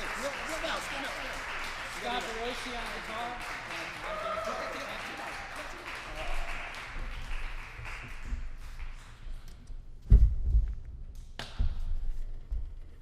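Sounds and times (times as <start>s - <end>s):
audience applause: 0.0s - 9.2s
heavy thumps: 10.0s - 13.0s.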